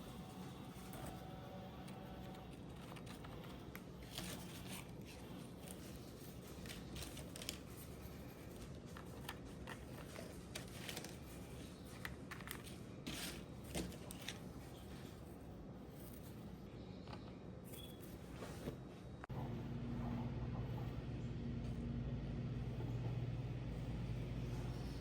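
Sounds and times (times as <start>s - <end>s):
objects being handled: 1.9s - 16.5s
low hum: 19.2s - 25.0s.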